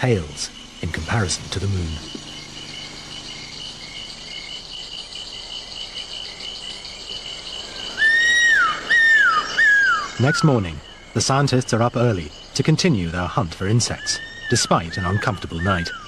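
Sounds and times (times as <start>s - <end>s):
crickets and insects trilling: 0.0s - 16.0s
whistled animal call: 7.9s - 10.6s, 13.9s - 16.0s.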